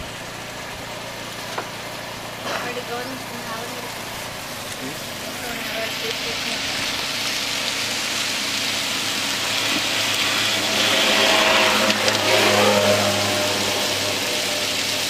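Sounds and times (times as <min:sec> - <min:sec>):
food sizzling in a wok: 0:00.0 - 0:15.0
low hum: 0:00.0 - 0:15.0.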